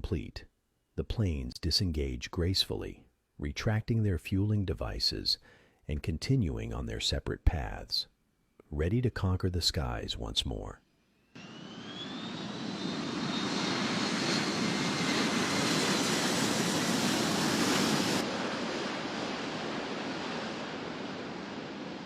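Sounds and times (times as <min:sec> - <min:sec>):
jet engine roar with whine: 0:11.2 - 0:22.0.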